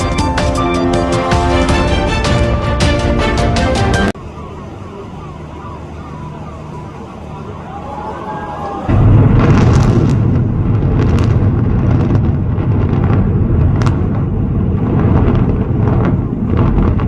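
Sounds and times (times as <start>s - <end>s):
distant demolition blast rumble: 4.2s - 17.0s
sharp cracks: 8.9s - 17.0s.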